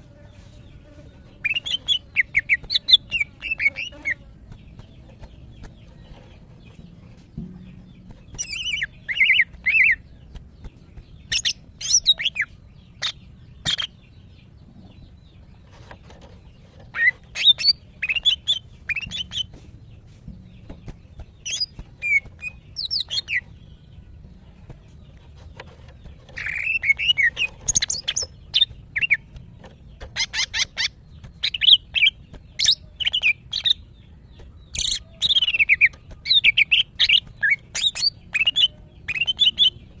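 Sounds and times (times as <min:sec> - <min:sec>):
bird chirping and whistling: 0:11.3 - 0:13.9, 0:21.4 - 0:23.4, 0:26.4 - 0:29.2, 0:30.2 - 0:33.8, 0:34.7 - 0:39.8.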